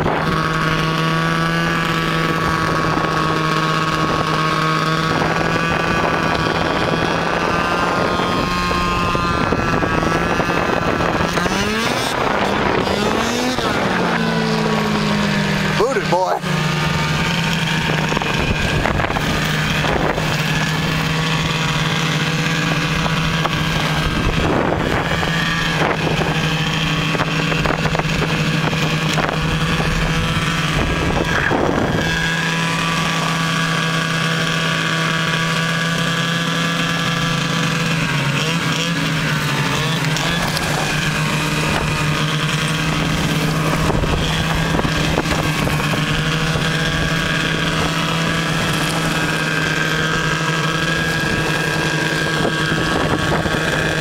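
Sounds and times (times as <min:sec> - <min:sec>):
wind noise on microphone: 0:00.0 - 0:15.8, 0:16.6 - 0:54.0
snowmobile engine running: 0:00.0 - 0:54.0.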